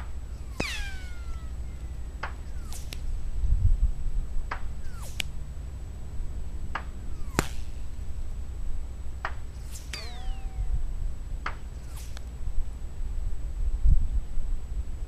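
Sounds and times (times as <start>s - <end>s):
wind rumbling on microphone: 0.0s - 15.0s
rifle shots cracking: 0.4s - 3.3s, 7.2s - 8.3s.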